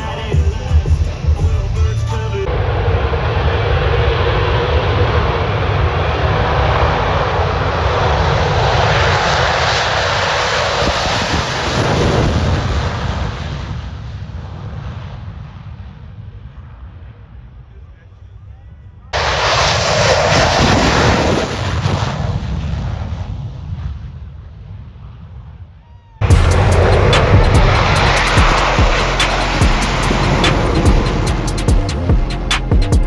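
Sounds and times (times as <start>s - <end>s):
aircraft engine roar: 0.0s - 14.1s, 26.2s - 33.0s.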